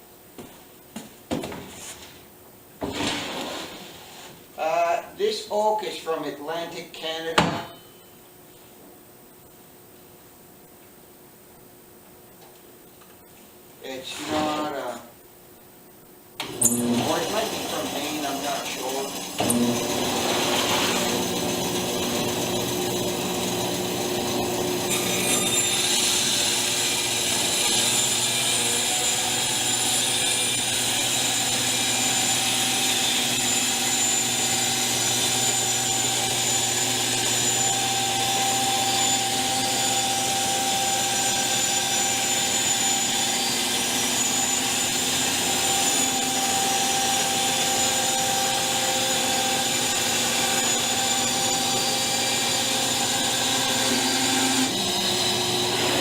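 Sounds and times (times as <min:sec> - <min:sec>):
bandsaw cutting wood: 0:16.4 - 0:56.0.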